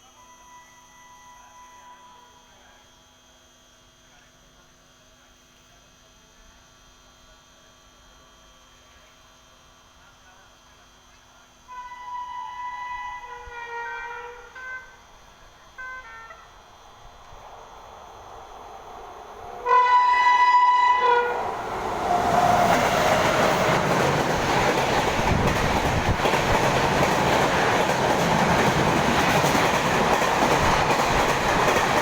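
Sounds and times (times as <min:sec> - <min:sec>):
train horn: 0:00.6 - 0:02.4, 0:11.7 - 0:16.6, 0:19.6 - 0:22.8.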